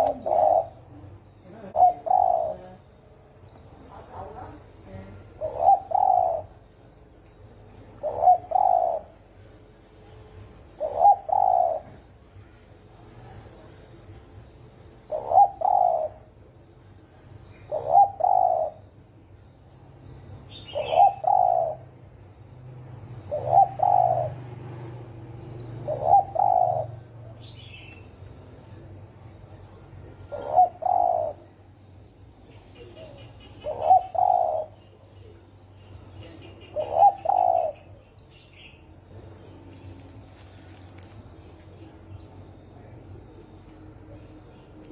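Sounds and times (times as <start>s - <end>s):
dove cooing: 0.0s - 3.0s, 4.1s - 6.7s, 7.9s - 9.6s, 10.5s - 12.2s, 15.0s - 16.5s, 17.4s - 19.0s, 19.8s - 22.2s, 23.0s - 28.3s, 30.0s - 31.6s, 32.4s - 42.1s
small birds chirping: 0.0s - 13.4s, 15.0s - 19.6s, 20.2s - 22.2s, 23.0s - 28.5s, 29.2s - 44.9s.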